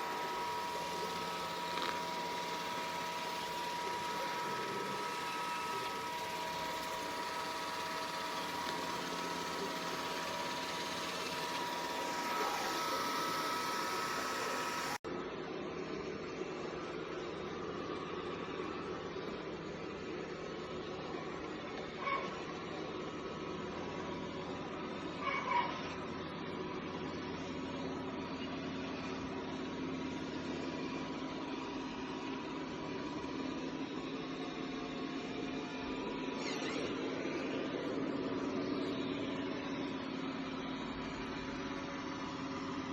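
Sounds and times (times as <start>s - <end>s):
robot vacuum whirring: 0.0s - 15.0s.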